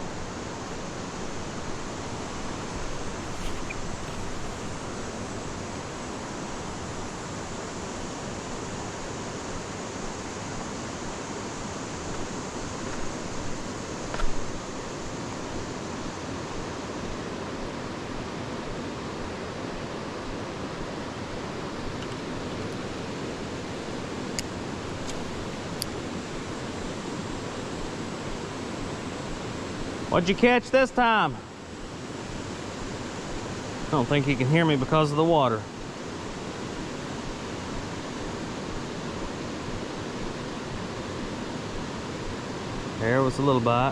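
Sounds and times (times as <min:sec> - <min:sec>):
creek water rushing: 0:00.0 - 0:43.9
faint clicks: 0:03.2 - 0:04.8.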